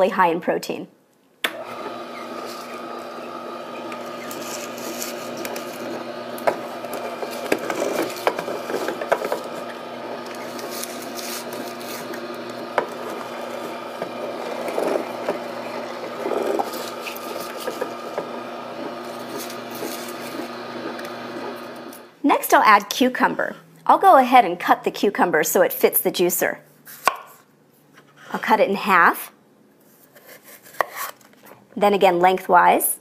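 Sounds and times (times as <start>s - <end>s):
juicer motor humming: 1.5s - 22.2s
spinach leaves crunching and snapping: 4.0s - 8.7s, 10.2s - 13.6s.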